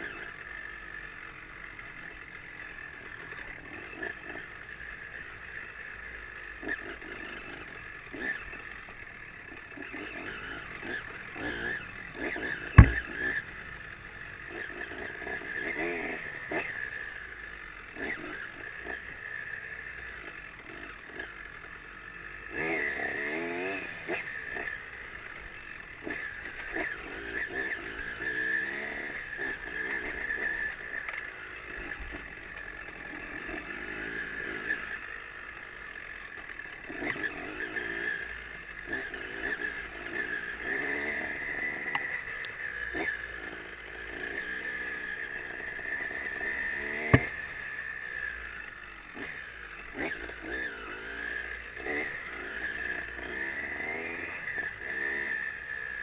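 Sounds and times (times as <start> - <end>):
motorcycle engine revving: 0.0 - 56.0
sharp knock: 12.8 - 13.1.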